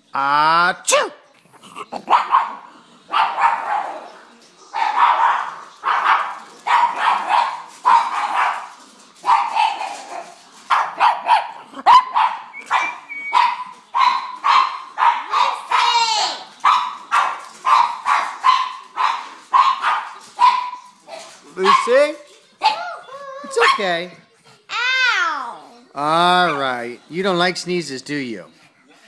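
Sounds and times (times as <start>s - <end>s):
dog barking: 2.1s - 4.1s, 4.8s - 15.9s, 16.6s - 22.0s.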